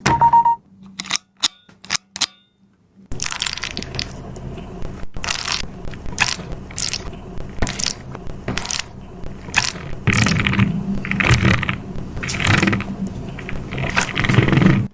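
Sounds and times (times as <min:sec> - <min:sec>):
stress ball squeezing: 0:03.1 - 0:14.9.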